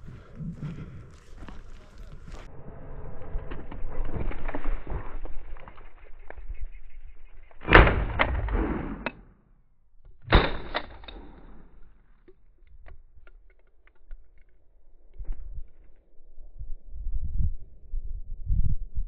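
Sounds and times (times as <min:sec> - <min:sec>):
shotgun shots: 0:07.6 - 0:09.2, 0:10.3 - 0:11.8.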